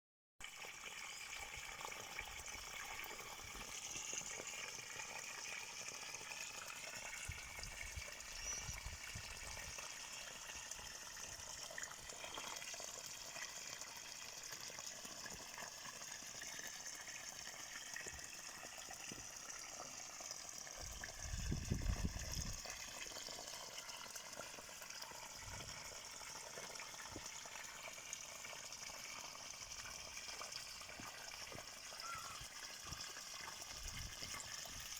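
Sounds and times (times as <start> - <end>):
running water rushing: 0.5 - 34.9.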